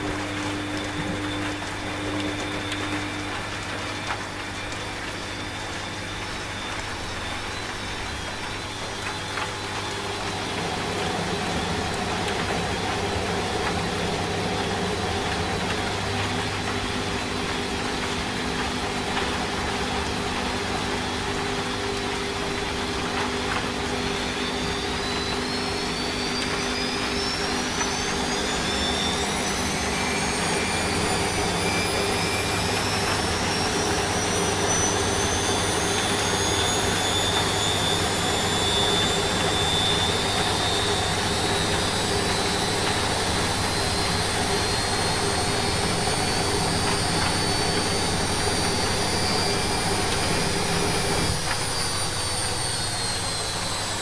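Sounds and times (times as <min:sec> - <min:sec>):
washing machine hum: 0:00.0 - 0:54.0
washing machine motor whine: 0:00.0 - 0:54.0.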